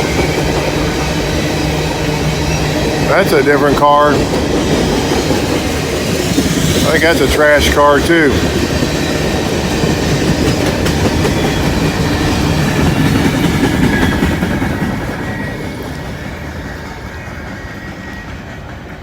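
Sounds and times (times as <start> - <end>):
freight train rumbling past: 0.0 - 19.0
train wheel clatter: 0.0 - 19.0.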